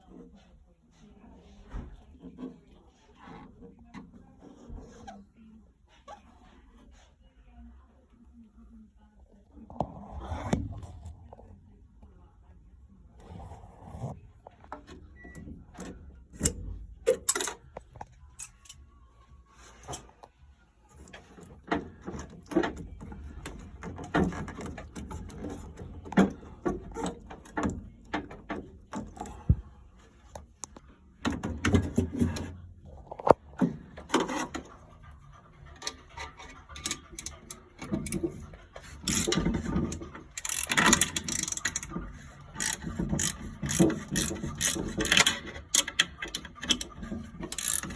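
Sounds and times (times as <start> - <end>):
metallic tool clicks and scrapes: 16.4 - 18.9, 35.8 - 47.9.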